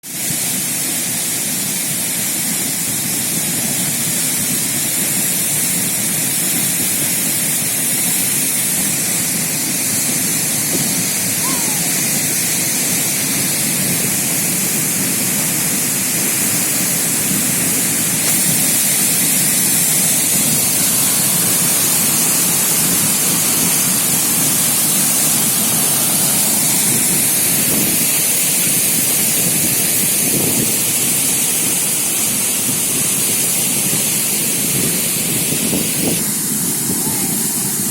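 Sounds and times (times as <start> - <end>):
waterfall rushing water: 0.1 - 37.9.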